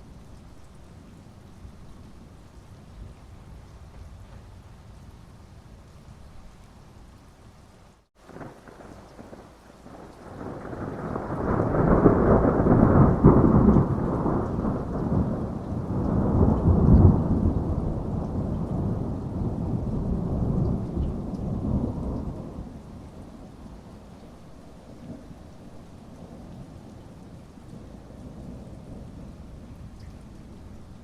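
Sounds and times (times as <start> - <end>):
heavy rain: 0.0 - 31.0
thunder rolling: 8.3 - 22.7.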